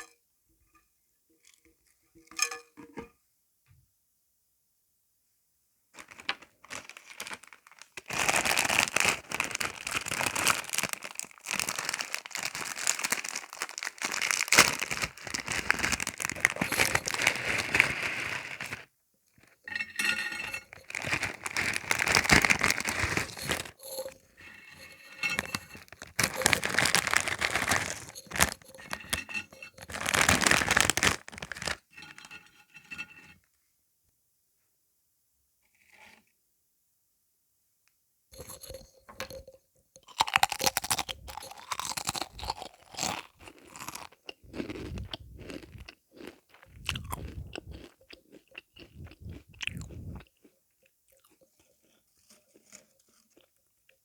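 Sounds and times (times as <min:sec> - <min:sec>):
sweet wrapper crinkling: 0:06.0 - 0:32.4, 0:40.2 - 0:48.0, 0:48.8 - 0:50.3.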